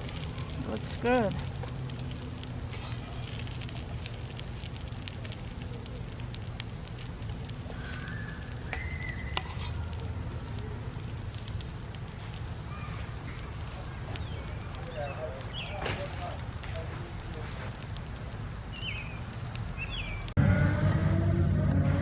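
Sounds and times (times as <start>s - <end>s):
wood fire crackling and popping: 0.0s - 20.4s
low rumble of flames: 0.0s - 22.0s.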